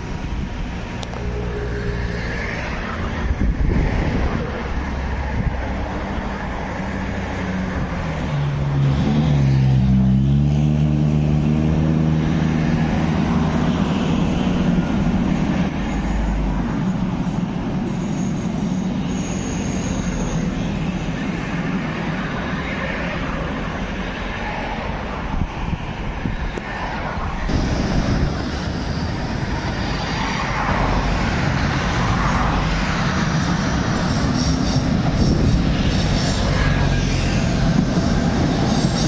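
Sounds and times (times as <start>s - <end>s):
rail noise: 0.0s - 39.0s
traffic rumble: 0.0s - 39.0s
vehicle passing close by: 1.6s - 16.7s, 26.8s - 39.0s.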